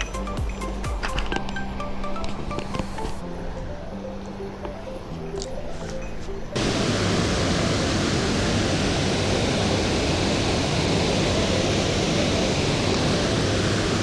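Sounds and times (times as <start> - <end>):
background music: 0.0 - 6.7
stream water rushing: 1.6 - 14.0.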